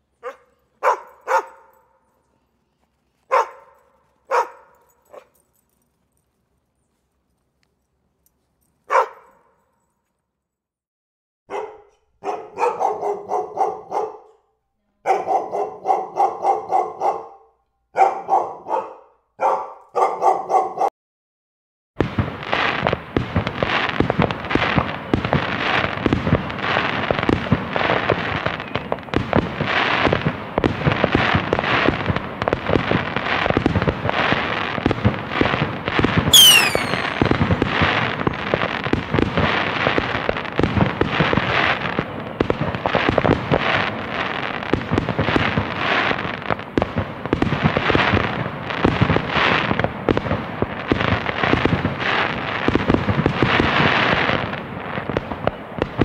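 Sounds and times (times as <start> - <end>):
dog barking: 0.2 - 2.0, 3.3 - 5.4, 8.9 - 9.6, 11.5 - 20.9
fireworks crackling and popping: 22.0 - 56.0
high falling whistle: 36.3 - 37.4.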